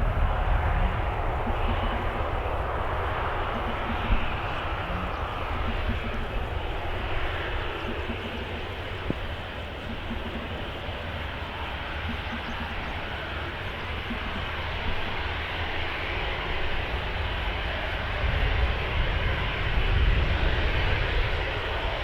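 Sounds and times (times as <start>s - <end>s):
low rumble: 0.0s - 9.3s
jet engines rushing: 0.0s - 22.0s.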